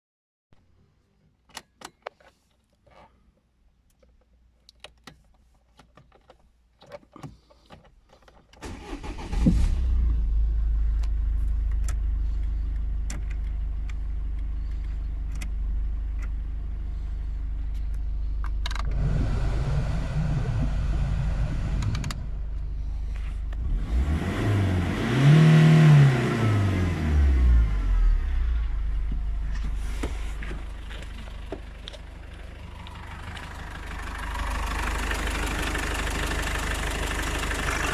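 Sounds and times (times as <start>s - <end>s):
diesel engine cranking and starting: 8.6s - 37.9s
diesel engine idling: 8.7s - 24.6s, 27.8s - 37.9s
engine revving: 8.7s - 30.6s.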